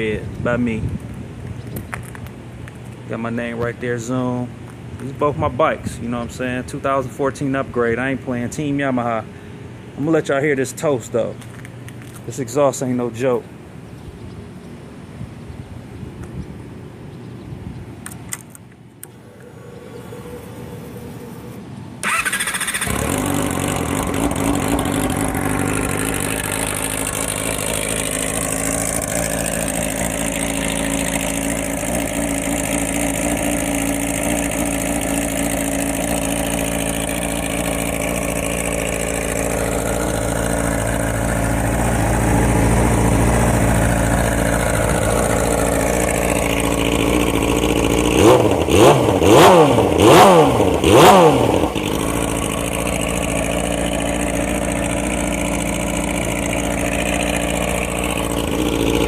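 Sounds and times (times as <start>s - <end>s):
motorcycle engine revving: 19.1s - 59.0s
motorcycle engine idling: 19.3s - 59.0s.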